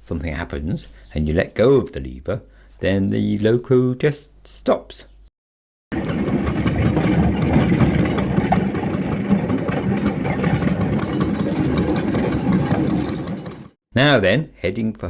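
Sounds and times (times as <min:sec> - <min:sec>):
single-cylinder engine running: 0:05.9 - 0:13.7.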